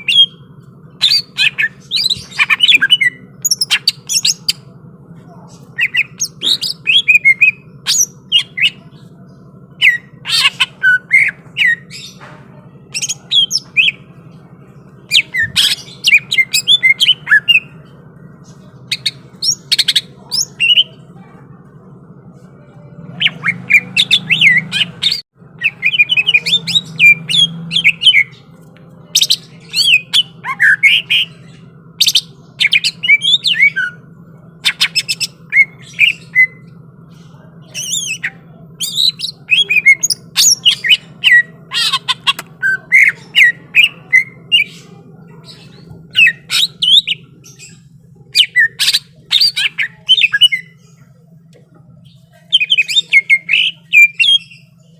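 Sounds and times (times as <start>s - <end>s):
bird chirping and whistling: 0.0s - 0.4s, 1.0s - 4.6s, 5.8s - 8.8s, 9.8s - 12.1s, 15.1s - 17.7s, 23.2s - 28.3s, 29.2s - 31.4s, 32.0s - 34.0s, 34.6s - 36.7s, 37.7s - 44.8s, 45.5s - 50.8s, 52.5s - 54.7s
steady low hum: 0.0s - 54.9s.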